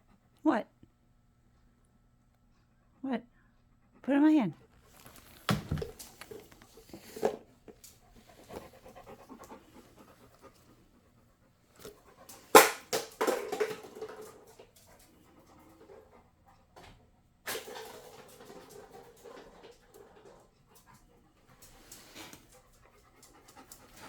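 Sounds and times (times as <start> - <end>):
dog panting: 2.4 - 12.6, 13.2 - 24.0
soft movement sounds: 4.7 - 10.9.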